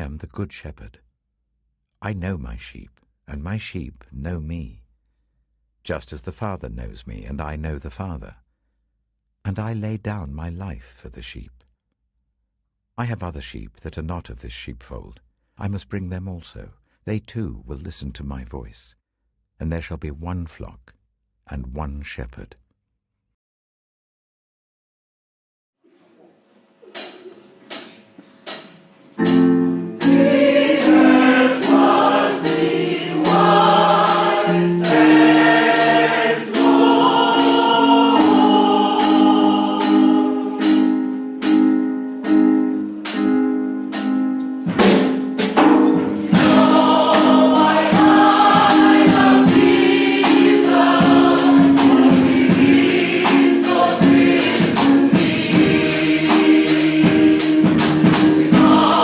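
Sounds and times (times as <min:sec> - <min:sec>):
instrumental accompaniment with beat: 0:27.0 - 0:59.0
group of voices singing: 0:30.0 - 0:41.1, 0:46.2 - 0:59.0.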